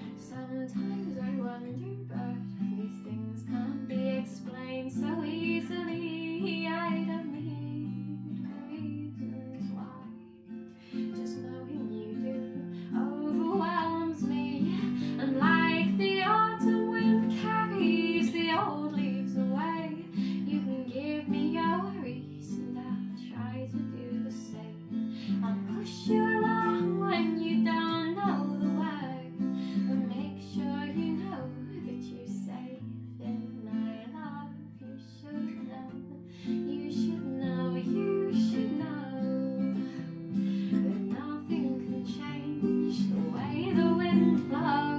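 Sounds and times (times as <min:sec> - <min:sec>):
acoustic guitar strumming: 0:00.0 - 0:34.2
woman singing: 0:00.0 - 0:44.9.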